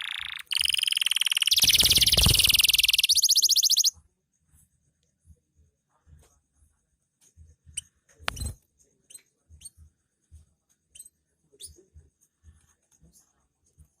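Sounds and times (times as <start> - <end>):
canary chirping: 0.0 - 4.0, 7.7 - 9.9, 10.9 - 11.9.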